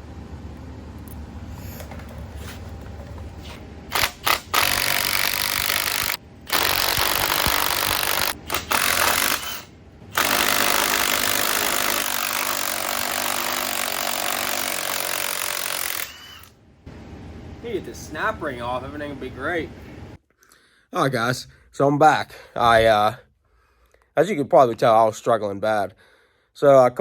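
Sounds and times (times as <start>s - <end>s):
loud power tool running: 3.9s - 16.6s.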